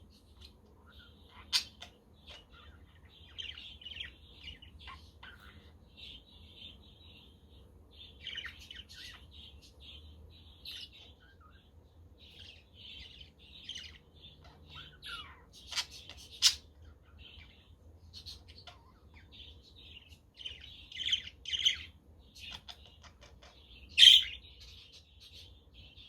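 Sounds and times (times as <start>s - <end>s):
budgerigars chattering: 0.3s - 5.7s, 18.2s - 25.5s.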